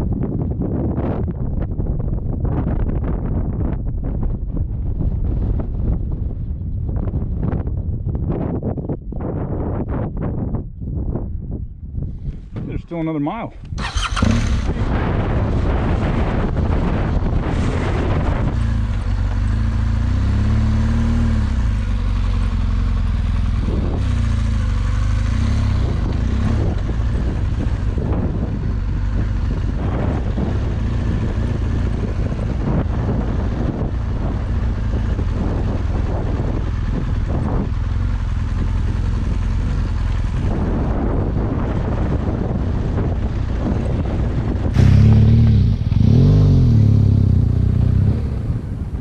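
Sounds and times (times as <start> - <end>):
wind noise: 0.0 - 49.0
motorcycle engine running: 13.7 - 49.0.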